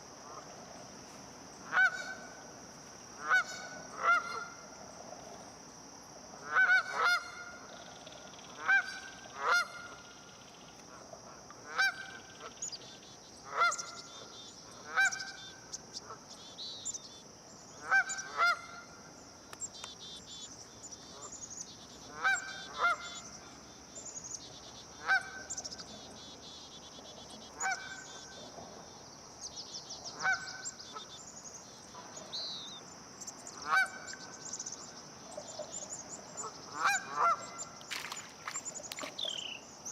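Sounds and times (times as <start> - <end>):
small birds chirping: 19.5 - 28.4, 29.4 - 39.9
geese honking: 36.7 - 37.6.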